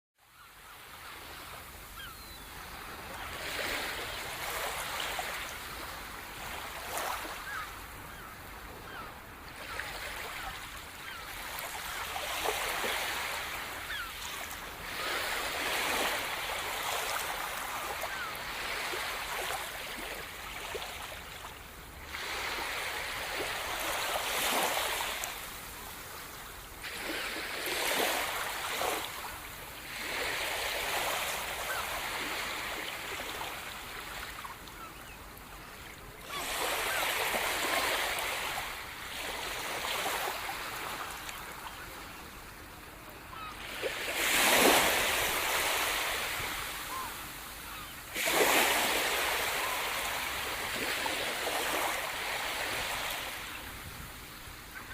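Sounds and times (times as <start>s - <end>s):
rushing water in surges: 42.9s - 54.9s.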